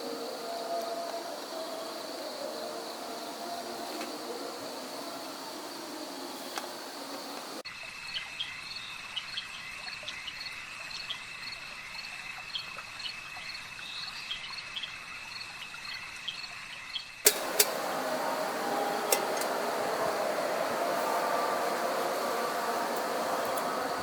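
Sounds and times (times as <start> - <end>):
insects trilling and chirping: 0.0 - 24.0
sharp clicks: 17.3 - 20.4.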